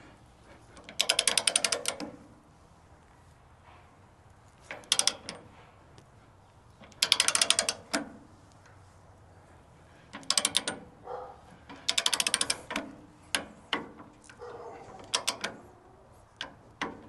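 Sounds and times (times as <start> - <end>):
ratcheting torque wrench clicking: 0.8 - 2.3, 4.7 - 5.5, 6.8 - 8.1, 10.1 - 10.9, 11.6 - 14.4, 15.0 - 15.6.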